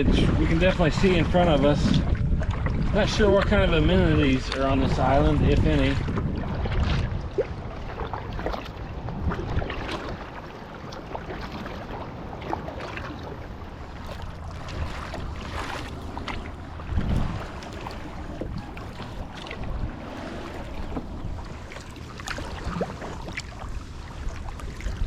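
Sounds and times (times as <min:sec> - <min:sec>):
wind on microphone: 0:00.0 - 0:25.0
paddle splashing in water: 0:04.5 - 0:25.0
water dripping: 0:13.6 - 0:22.7.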